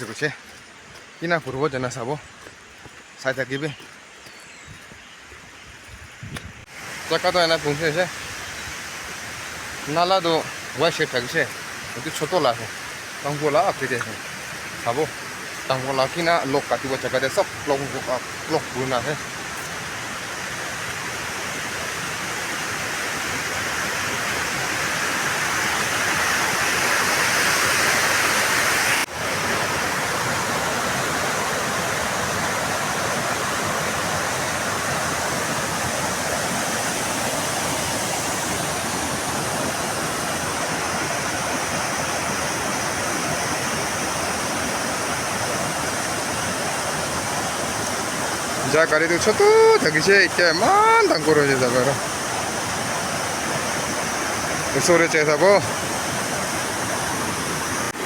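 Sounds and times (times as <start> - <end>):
water rushing along a channel: 0.0 - 4.0, 6.3 - 58.0.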